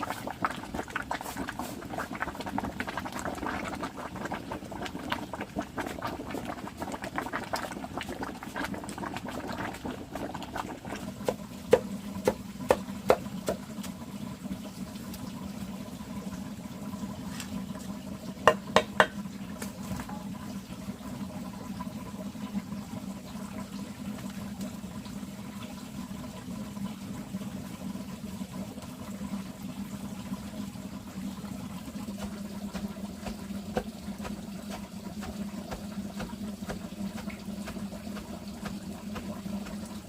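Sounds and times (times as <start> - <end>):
liquid bubbling: 0.0 - 40.0
sharp knocks: 18.5 - 19.2.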